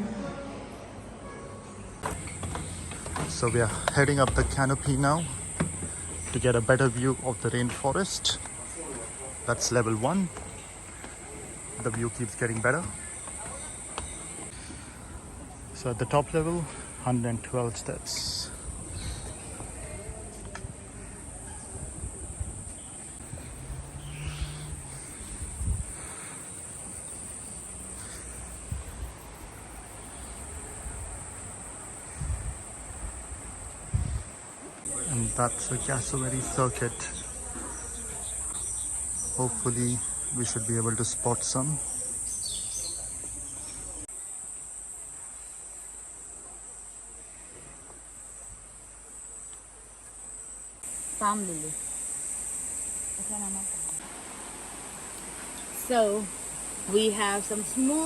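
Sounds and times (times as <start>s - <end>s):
insects droning: 2.0s - 58.0s
faint animal calls: 23.2s - 31.1s.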